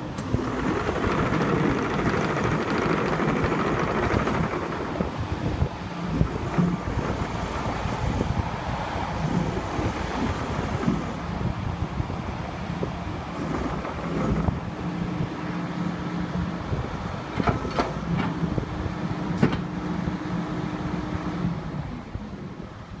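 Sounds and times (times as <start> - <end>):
excavator diesel engine running: 0.0 - 23.0
sharp clicks or knocks: 17.3 - 18.4, 19.4 - 19.7.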